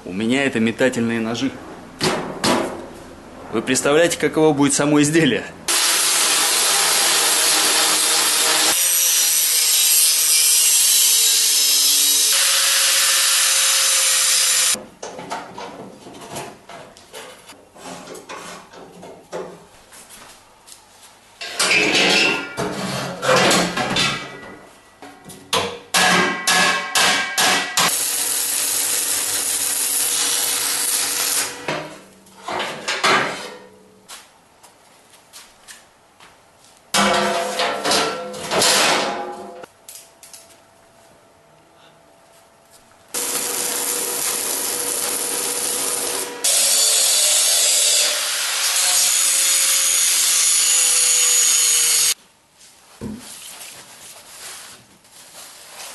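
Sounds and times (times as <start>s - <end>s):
power tool running: 5.7s - 9.6s, 10.2s - 14.8s, 27.9s - 31.6s, 43.2s - 52.2s
metal strikes and clanks: 21.4s - 27.9s, 36.9s - 39.7s.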